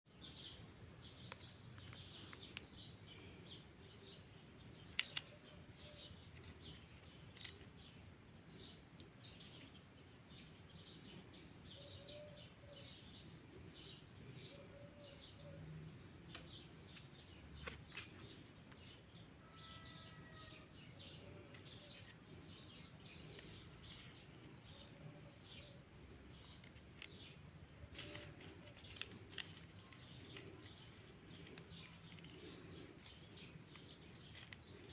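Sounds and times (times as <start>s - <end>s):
small birds chirping: 0.0s - 34.9s
sharp clicks: 4.9s - 5.5s, 27.9s - 34.9s.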